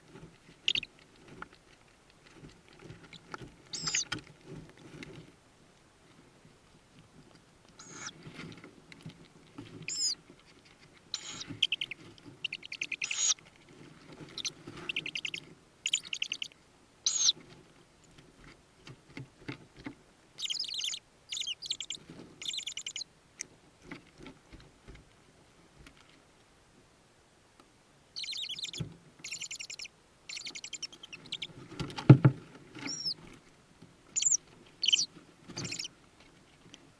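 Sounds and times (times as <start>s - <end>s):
owl chicks buzzy calls: 0.6s - 1.0s, 3.1s - 4.2s, 7.8s - 8.2s, 9.8s - 10.2s, 11.1s - 13.4s, 14.2s - 17.4s, 20.4s - 23.1s, 28.2s - 31.6s, 32.8s - 33.2s, 34.1s - 35.9s.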